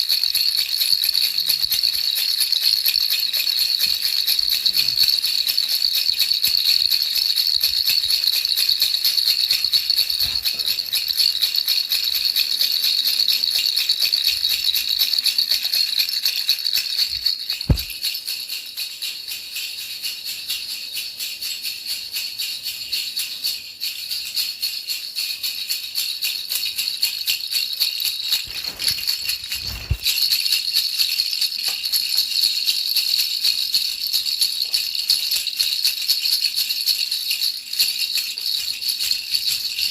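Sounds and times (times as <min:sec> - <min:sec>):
baby rattle shaken fast: 0:00.0 - 0:39.9
brief low thump: 0:17.7 - 0:17.9.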